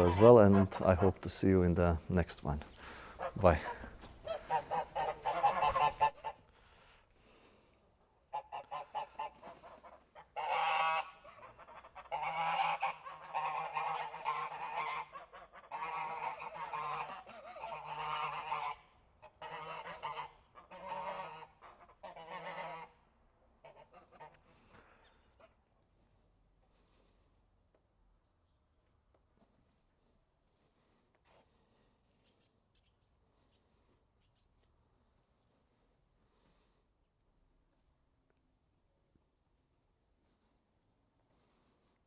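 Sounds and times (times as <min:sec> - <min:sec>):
honking bird calls: 0:02.8 - 0:06.4, 0:08.3 - 0:22.9.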